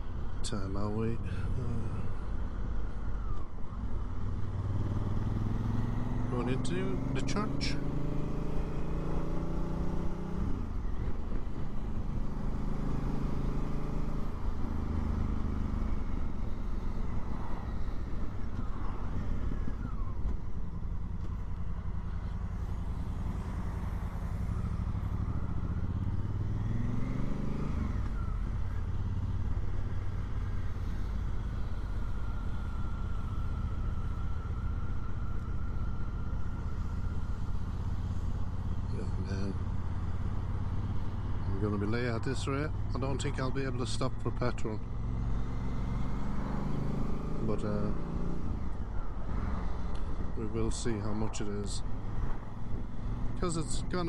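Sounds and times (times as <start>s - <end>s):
motorcycle engine running: 4.2s - 41.9s.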